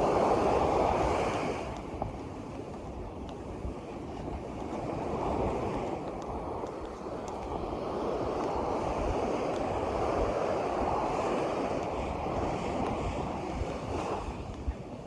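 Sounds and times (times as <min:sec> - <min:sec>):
water rushing: 0:00.0 - 0:15.0
wind buffeting microphone: 0:00.0 - 0:15.0.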